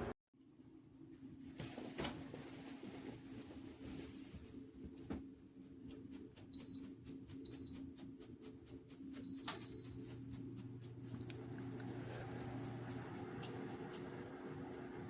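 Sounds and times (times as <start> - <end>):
electric heater humming: 0.0 - 15.0.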